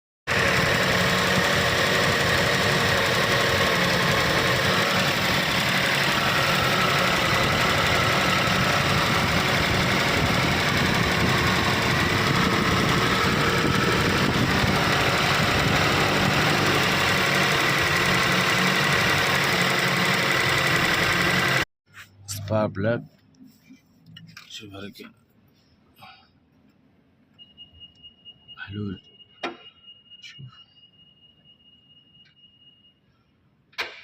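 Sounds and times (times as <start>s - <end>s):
car engine idling with misfire: 0.3s - 21.6s.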